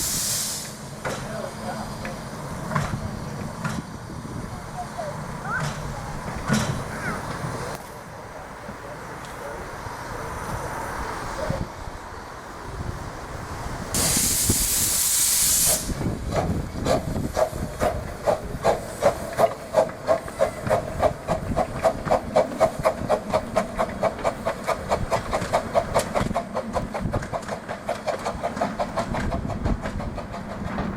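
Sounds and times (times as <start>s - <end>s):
steam hiss: 0.0s - 4.5s, 12.5s - 29.6s
steam locomotive chuffing: 0.0s - 30.9s.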